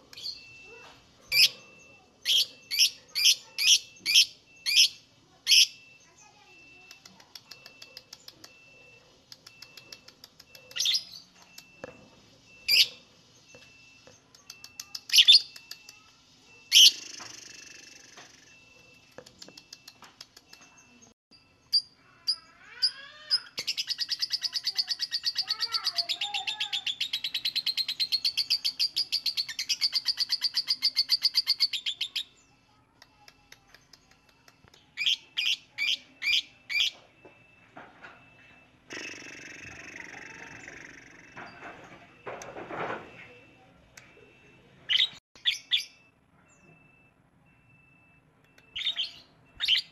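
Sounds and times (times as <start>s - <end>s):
lovebird calls and chattering trill: 0.1s - 11.9s, 12.5s - 37.1s, 44.9s - 46.8s, 48.5s - 49.9s.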